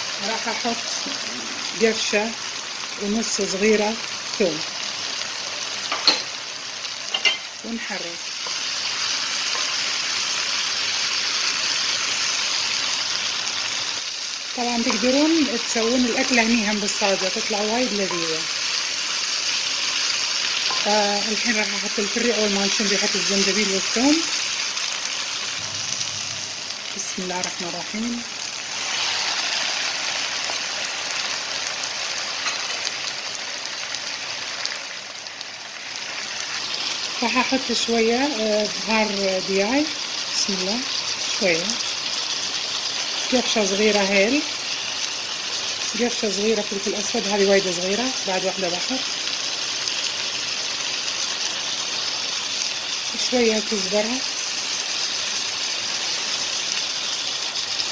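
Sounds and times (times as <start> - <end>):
onions sizzling in a pan: 0.0 - 57.9.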